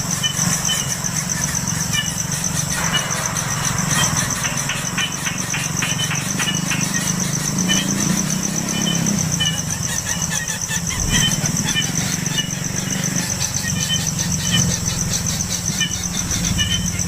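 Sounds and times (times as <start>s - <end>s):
insect chirring: 0.0s - 17.0s
low hum: 1.3s - 9.3s.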